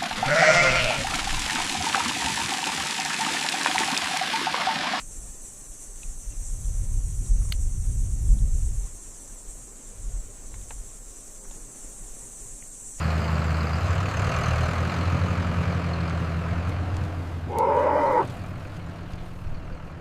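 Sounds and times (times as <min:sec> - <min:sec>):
low engine rumble: 0:13.0 - 0:20.0
camel groaning: 0:17.5 - 0:18.4.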